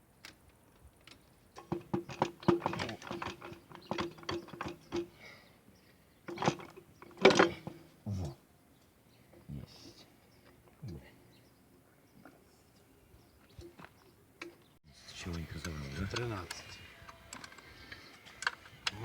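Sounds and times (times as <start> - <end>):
metal clicking: 0.2 - 5.2, 6.3 - 7.8, 15.3 - 19.0
metal knocks: 1.6 - 5.2, 6.3 - 7.9.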